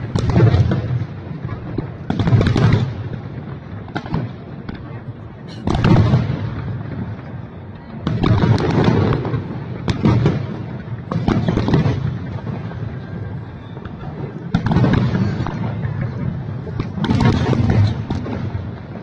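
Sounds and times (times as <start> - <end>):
fireworks booming and crackling: 0.0 - 19.0.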